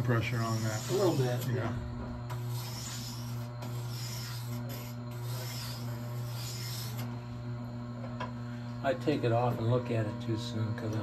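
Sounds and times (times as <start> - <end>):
grinder motor humming: 0.0 - 11.0
steel blade scraping grindstone: 2.3 - 7.1.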